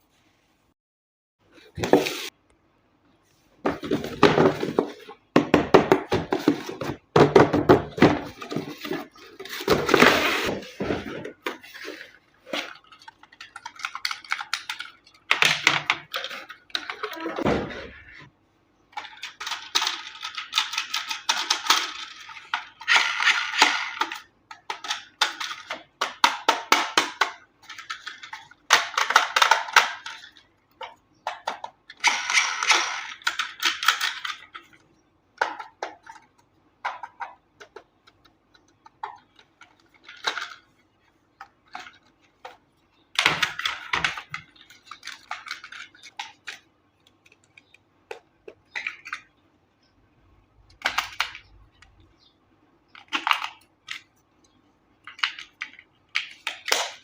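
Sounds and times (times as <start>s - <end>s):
toy parts clicking and clattering: 11.4s - 17.4s, 18.9s - 49.4s, 52.9s - 57.0s.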